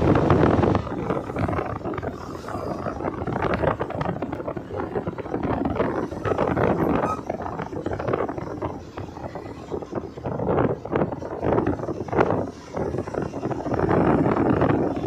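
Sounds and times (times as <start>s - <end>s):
road and traffic noise: 0.0s - 15.0s
wind buffeting microphone: 0.0s - 15.0s.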